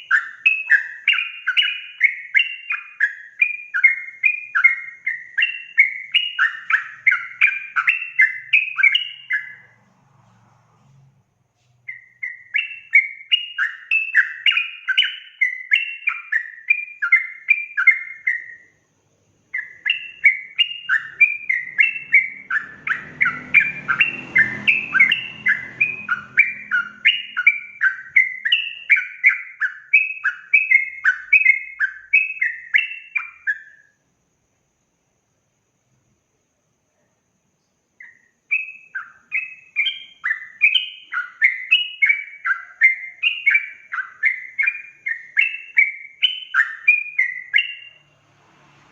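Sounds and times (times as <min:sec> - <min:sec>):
bird singing bubbly whistled notes: 0:00.0 - 0:09.8, 0:11.9 - 0:18.8, 0:19.5 - 0:34.0, 0:38.0 - 0:48.3
faint low rumble: 0:09.1 - 0:12.4.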